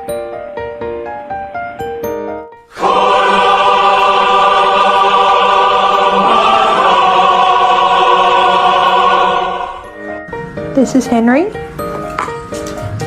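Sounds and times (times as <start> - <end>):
choir-like voice chord: 2.6 - 10.3
light chiming notes: 9.7 - 13.0.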